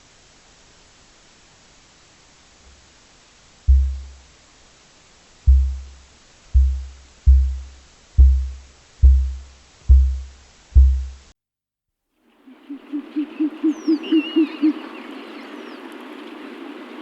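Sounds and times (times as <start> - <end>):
deep booming thuds: 3.7 - 4.2, 5.5 - 11.3.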